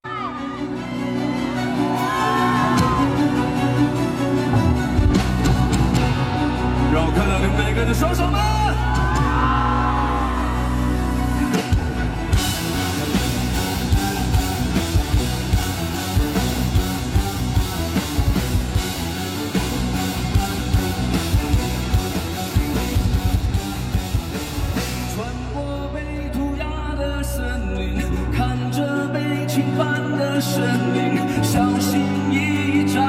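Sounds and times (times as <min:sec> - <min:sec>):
distorted guitars and bass: 0:02.5 - 0:33.0
drum kit with cymbals: 0:11.4 - 0:25.6.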